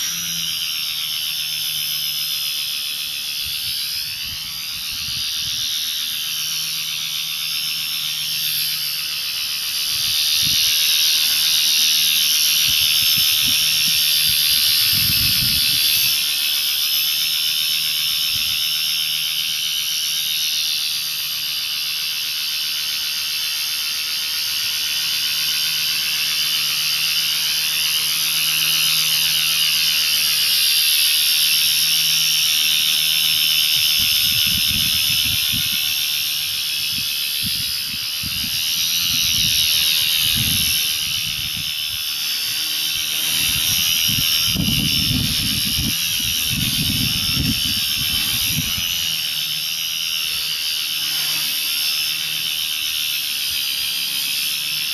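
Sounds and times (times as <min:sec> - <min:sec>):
rc helicopter motor whining: 0:00.0 - 0:54.9
gusty buffeting on microphone: 0:04.0 - 0:05.6, 0:14.4 - 0:15.9, 0:34.0 - 0:35.9, 0:36.8 - 0:42.0, 0:43.3 - 0:49.1.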